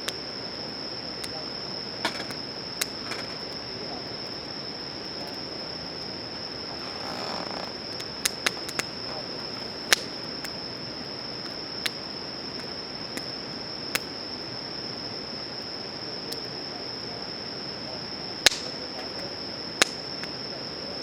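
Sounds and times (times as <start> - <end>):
high insect drone: 0.0 - 21.0
campfire crackling and popping: 1.1 - 14.5, 18.2 - 20.5.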